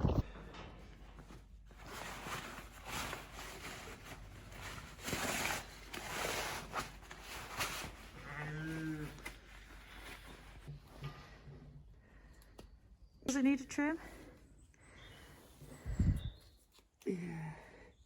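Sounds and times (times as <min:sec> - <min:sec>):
rustling and shuffling: 0:00.0 - 0:12.3.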